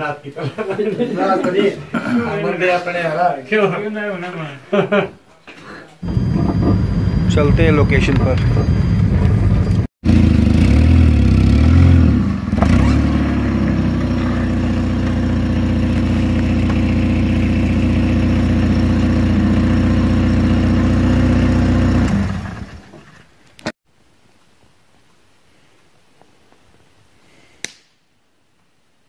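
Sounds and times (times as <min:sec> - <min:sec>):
car engine revving and idling: 0:06.0 - 0:23.0.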